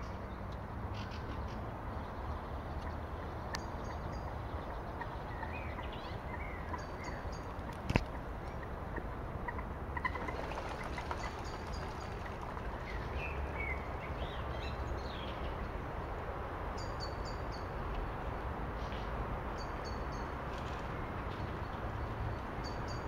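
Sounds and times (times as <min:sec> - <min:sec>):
birds calling: 0:02.8 - 0:15.6.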